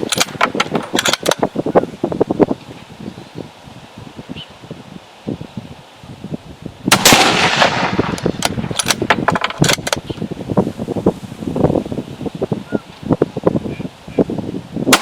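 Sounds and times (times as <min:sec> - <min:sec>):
wind buffeting microphone: 0:00.0 - 0:15.0
rifle shot echoing: 0:06.9 - 0:09.2.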